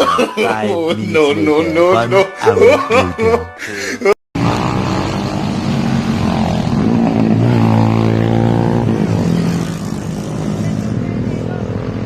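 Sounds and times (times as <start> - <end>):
motorcycle engine running: 4.4 - 12.0.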